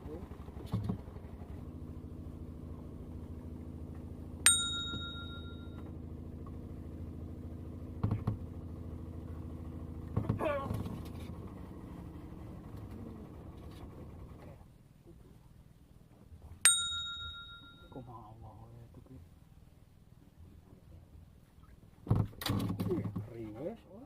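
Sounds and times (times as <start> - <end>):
steady low hum: 0.0 - 24.0
small bell ringing: 4.5 - 5.8, 16.7 - 18.1.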